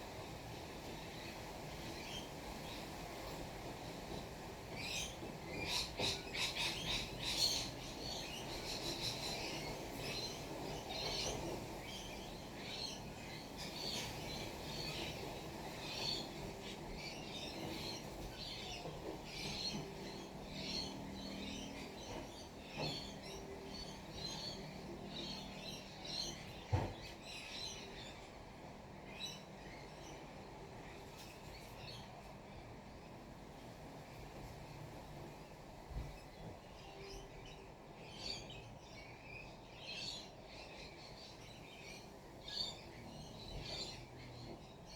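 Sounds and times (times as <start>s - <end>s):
small birds chirping: 0.8s - 28.3s.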